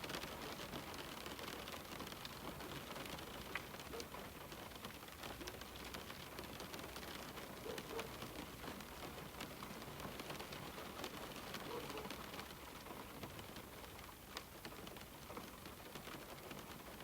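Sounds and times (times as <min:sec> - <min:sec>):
rain on a window: 0:00.0 - 0:17.0.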